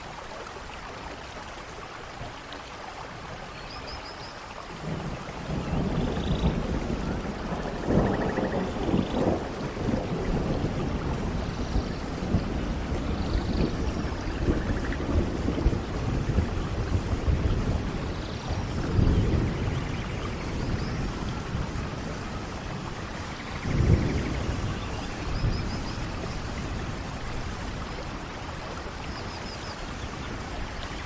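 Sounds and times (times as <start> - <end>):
heavy rain: 0.0 - 31.0
rolling thunder: 4.8 - 31.0.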